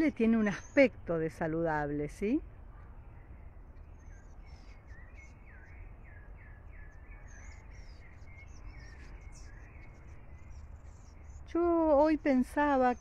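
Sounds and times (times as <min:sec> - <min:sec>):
small birds chirping: 0:00.0 - 0:13.0
steady low rumble: 0:01.9 - 0:13.0.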